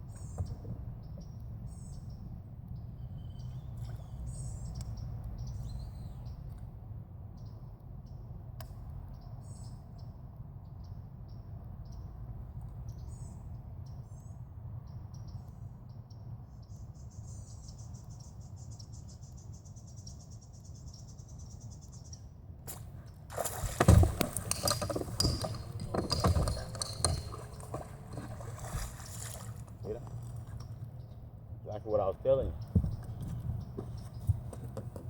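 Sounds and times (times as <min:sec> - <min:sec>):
steady low hum: 0:00.0 - 0:35.0
knocks clicks and rustling: 0:23.6 - 0:28.4.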